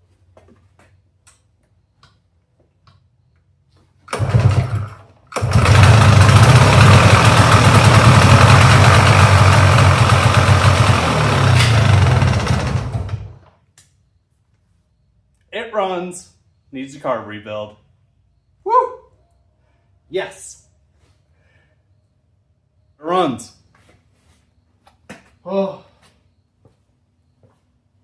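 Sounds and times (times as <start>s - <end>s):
atv engine starting and running: 4.0s - 13.6s.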